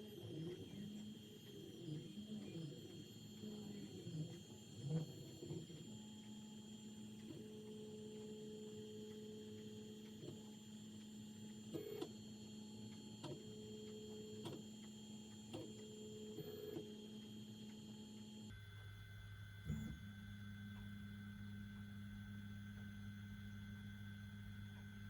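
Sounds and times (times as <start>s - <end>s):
faint printer clicks: 0.0s - 19.0s.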